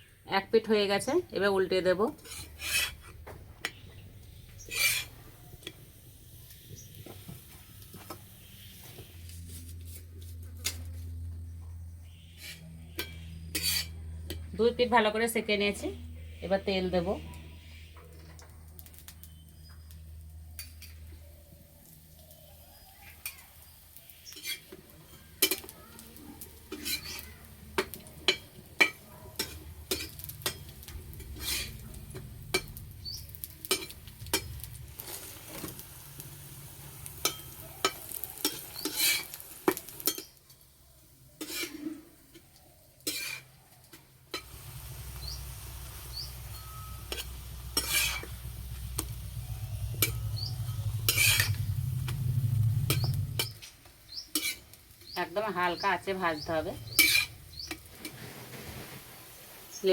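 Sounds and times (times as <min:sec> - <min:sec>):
light oil sizzle: 0:00.6 - 0:09.4, 0:17.0 - 0:59.9
metal spatula scraping griddle: 0:02.1 - 0:03.8, 0:04.6 - 0:05.2, 0:12.1 - 0:14.0, 0:24.2 - 0:25.7, 0:26.4 - 0:40.3, 0:41.4 - 0:42.2, 0:43.0 - 0:43.6, 0:44.3 - 0:55.1, 0:56.3 - 0:59.4.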